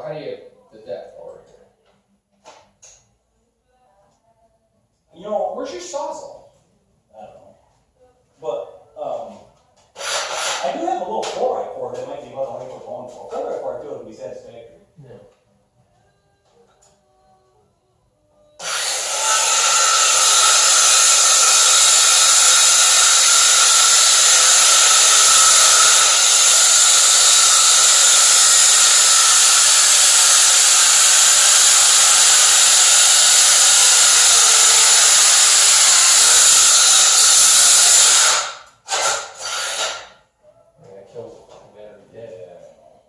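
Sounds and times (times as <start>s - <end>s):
circular saw cutting wood: 18.6s - 40.2s.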